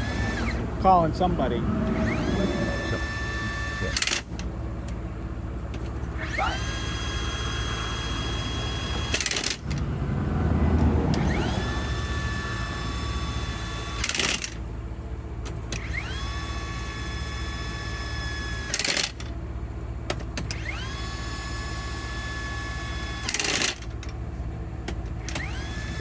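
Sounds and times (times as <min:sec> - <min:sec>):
machine motor whine rising: 0:00.0 - 0:04.5, 0:06.2 - 0:14.5
low engine hum: 0:00.0 - 0:18.5, 0:19.2 - 0:26.0.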